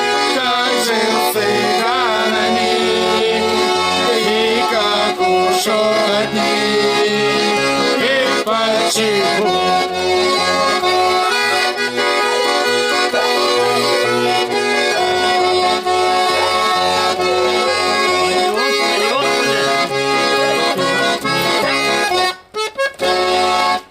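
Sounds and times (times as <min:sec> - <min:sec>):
accordion melody with bass chords: 0:00.0 - 0:23.9.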